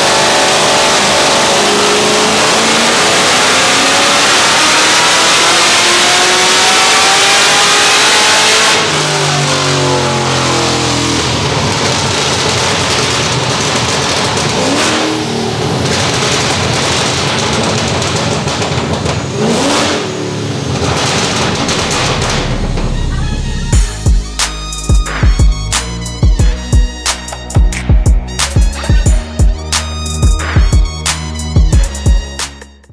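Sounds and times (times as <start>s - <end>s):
car engine revving: 0.0s - 23.9s.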